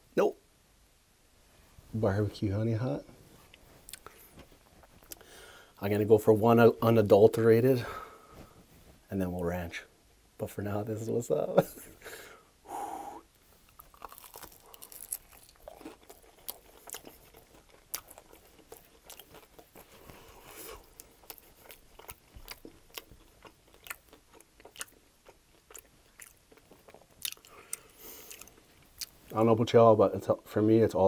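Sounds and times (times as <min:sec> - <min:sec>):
crunching chewing of crispy chicken: 0:13.6 - 0:29.2.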